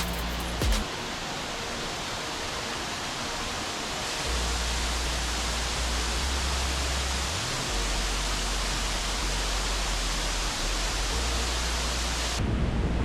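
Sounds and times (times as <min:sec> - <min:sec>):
waterfall rushing: 0:00.0 - 0:12.4
low rumble: 0:05.7 - 0:13.0.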